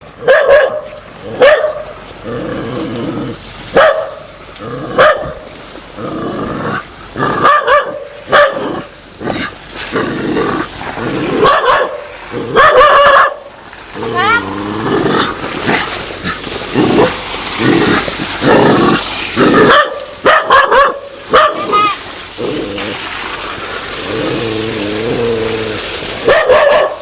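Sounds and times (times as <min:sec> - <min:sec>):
dog barking aggressively: 0:00.2 - 0:02.0, 0:03.7 - 0:05.5, 0:07.2 - 0:10.5, 0:11.1 - 0:13.5, 0:15.1 - 0:21.9, 0:26.2 - 0:27.0
dog growling: 0:02.2 - 0:03.5, 0:04.6 - 0:11.6, 0:13.9 - 0:19.8, 0:22.4 - 0:23.1, 0:24.0 - 0:26.0.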